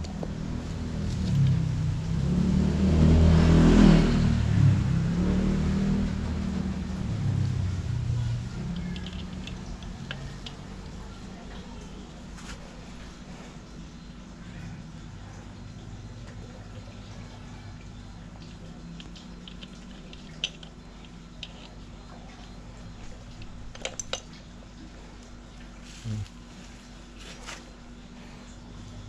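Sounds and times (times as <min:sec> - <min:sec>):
low steady hum: 0:00.0 - 0:29.0
hand tools clicking on metal: 0:08.6 - 0:10.9.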